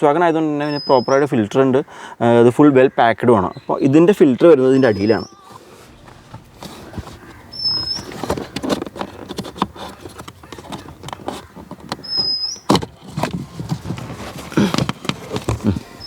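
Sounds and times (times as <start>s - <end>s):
plastic clicks and knocks: 6.9s - 15.9s
short high squeaks: 12.0s - 12.8s.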